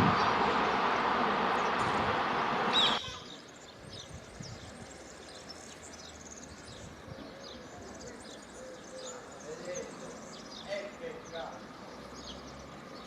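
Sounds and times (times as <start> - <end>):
train rushing past: 0.0 - 3.0
high squeal: 2.7 - 3.1
small birds chirping: 2.7 - 13.0.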